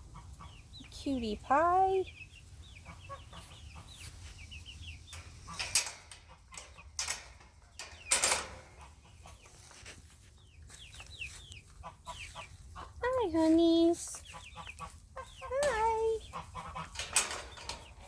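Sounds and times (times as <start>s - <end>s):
chickens clucking softly: 0.0s - 1.0s, 1.8s - 18.0s.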